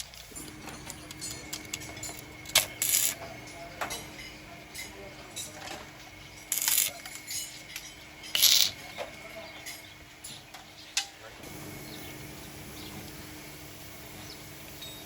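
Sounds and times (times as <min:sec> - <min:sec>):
hand tools clinking on metal: 0:00.0 - 0:11.2
steady low hum: 0:00.0 - 0:15.0.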